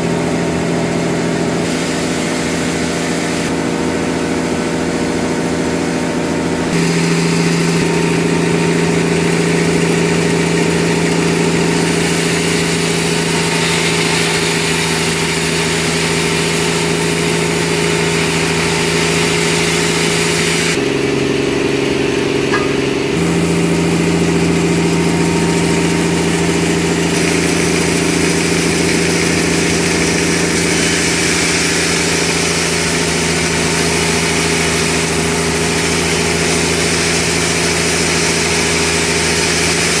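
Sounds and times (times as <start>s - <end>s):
sawmill engine humming: 0.0s - 40.0s
hissing noise: 1.6s - 3.5s.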